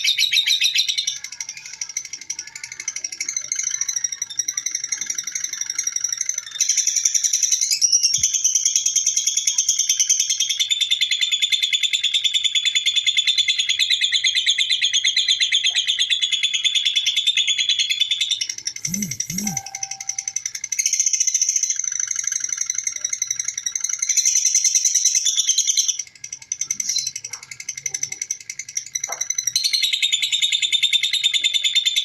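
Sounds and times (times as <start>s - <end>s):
lovebird rapid high chattering: 18.8s - 20.3s.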